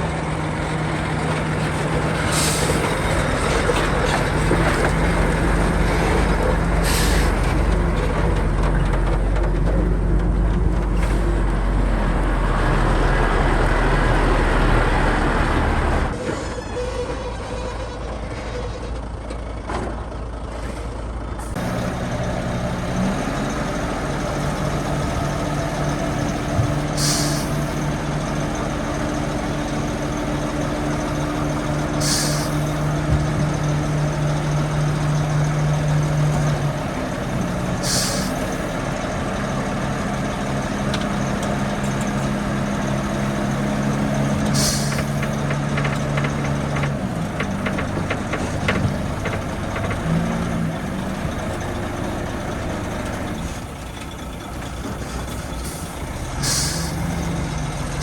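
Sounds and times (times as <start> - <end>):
heavy diesel engine running: 0.0 - 58.0
short hisses of released air: 27.0 - 27.6, 32.0 - 32.6, 37.8 - 38.4, 44.6 - 45.1, 56.4 - 57.0.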